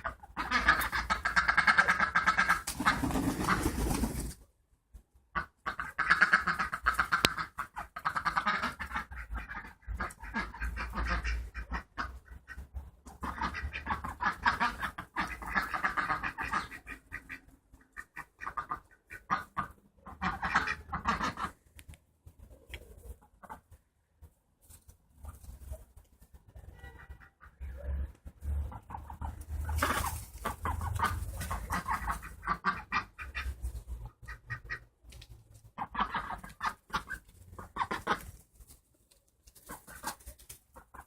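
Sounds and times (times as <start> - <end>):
duck calling: 0.0 - 3.7, 13.2 - 21.6, 28.6 - 34.9, 35.8 - 38.3.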